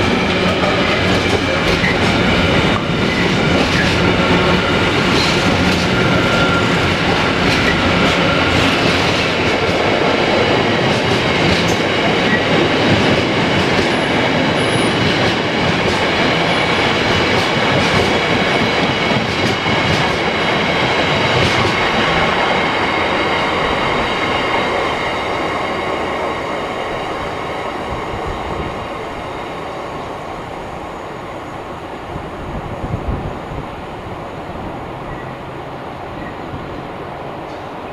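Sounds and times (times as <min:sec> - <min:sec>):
train rumbling on rails: 0:00.0 - 0:37.9
high wheel squeal: 0:04.2 - 0:09.0.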